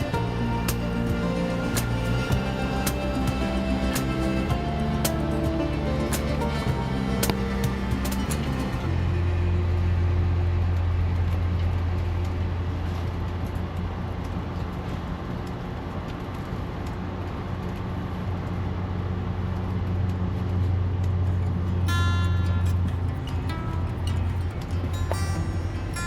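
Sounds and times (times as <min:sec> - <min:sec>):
passenger train rumble: 0:21.2 - 0:26.0.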